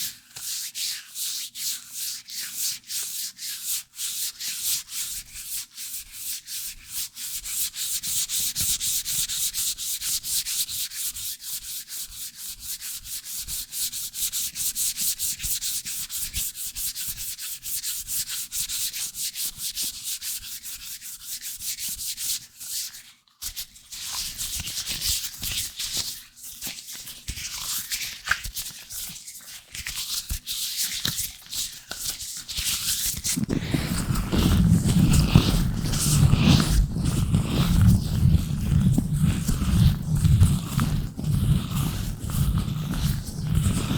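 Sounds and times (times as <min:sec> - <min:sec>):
gloved fingers rubbing microphone: 0:33.2 - 0:43.9.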